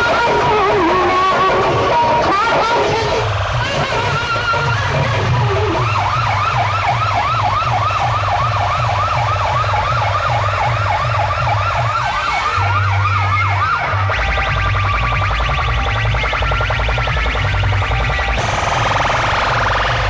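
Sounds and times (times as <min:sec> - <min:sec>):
siren-style synth effect: 0:00.0 - 0:20.0
heavy bass beat: 0:12.5 - 0:20.0.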